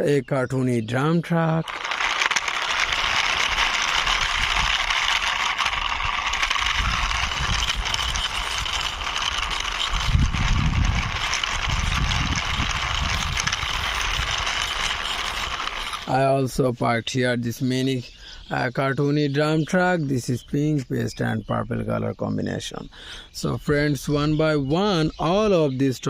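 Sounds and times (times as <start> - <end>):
plastic toy wheels scraping: 0.6 - 16.8
heavier low rumbles: 2.7 - 15.5.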